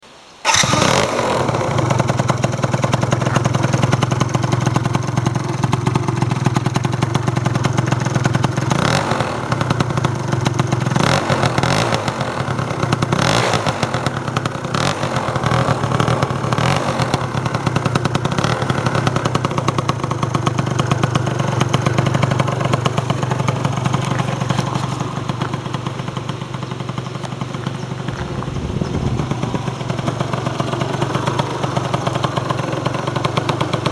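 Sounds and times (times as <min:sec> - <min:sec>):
scooter engine idling: 0:00.4 - 0:33.9
scooter throttle blips: 0:00.4 - 0:33.9.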